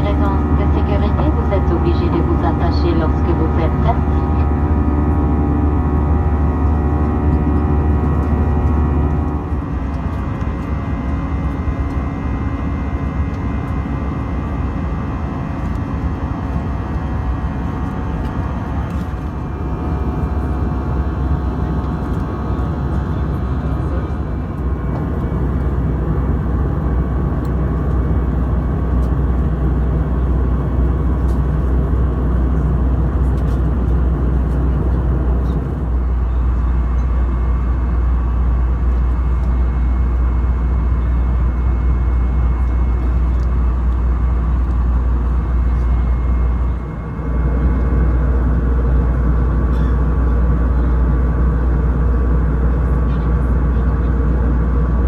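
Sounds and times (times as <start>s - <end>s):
faint steady hum: 0.0s - 10.0s
aircraft cabin low rumble: 0.0s - 55.0s.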